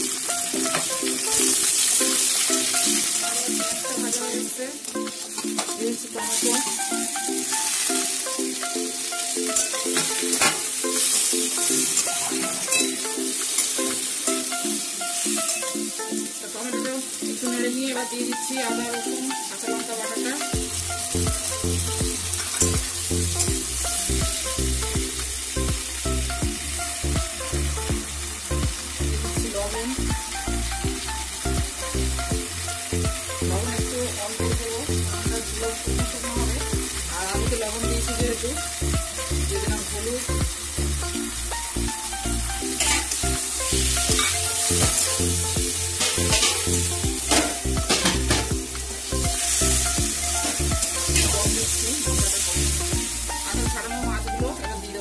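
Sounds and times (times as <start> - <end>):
background music with a beat: 0.0 - 55.0
vegetables sizzling in hot oil: 0.0 - 55.0
metal spatula scraping a pan: 42.8 - 43.3, 44.1 - 45.2, 45.9 - 48.5.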